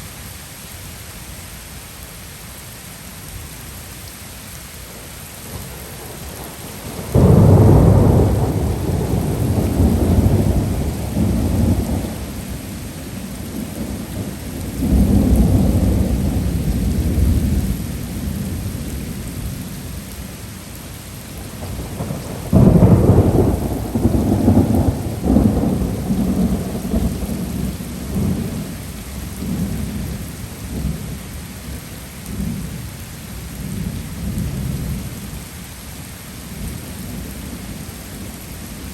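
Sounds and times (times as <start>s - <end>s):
heavy rain: 0.0s - 38.9s
thunder rumbling: 5.4s - 19.9s, 21.3s - 31.0s.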